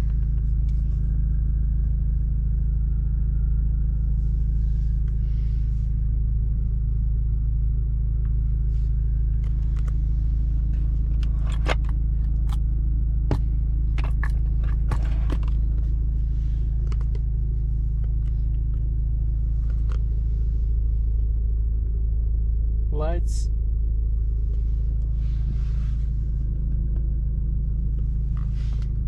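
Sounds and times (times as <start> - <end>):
sharp clicks of interior controls: 0.0 - 2.1, 8.2 - 8.4, 9.2 - 16.0, 16.6 - 18.9, 19.5 - 20.2, 23.9 - 29.0
car engine idling: 0.0 - 29.0.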